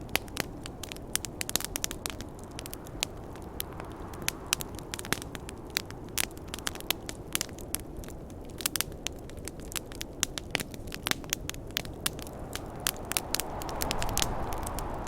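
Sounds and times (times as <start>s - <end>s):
wood fire crackling and popping: 0.0s - 15.0s
low rushing noise: 11.8s - 15.0s.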